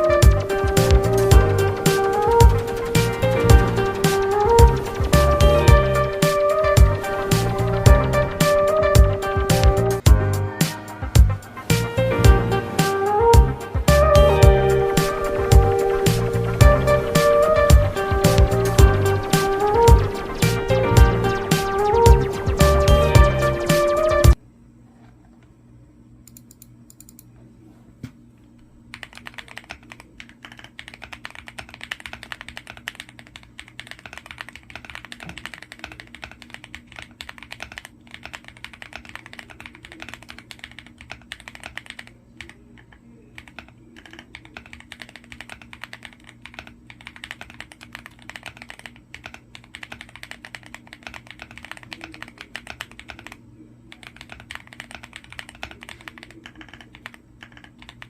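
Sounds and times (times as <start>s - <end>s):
fast mechanical keyboard typing: 0.0s - 7.7s, 15.0s - 24.2s, 28.9s - 58.0s.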